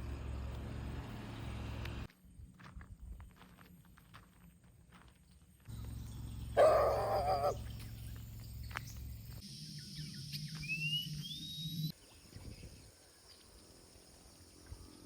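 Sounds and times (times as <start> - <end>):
rising bird chirps: 5.9 - 13.4
wavering animal call: 6.6 - 7.6.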